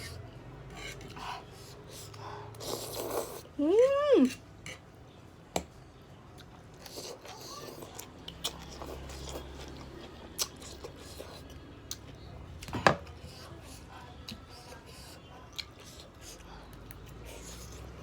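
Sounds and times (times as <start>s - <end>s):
chewing and mouth sounds: 6.3s - 18.0s.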